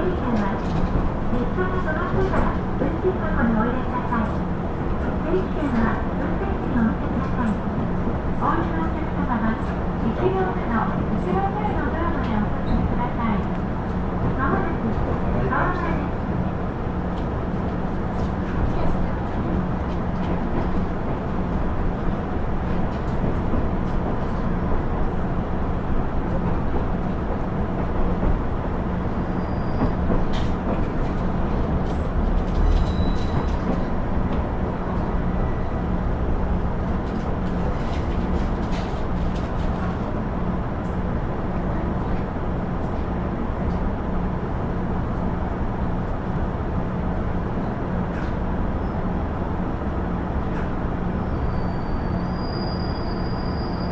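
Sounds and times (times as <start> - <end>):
train wheel and rail noise: 0.0 - 53.9.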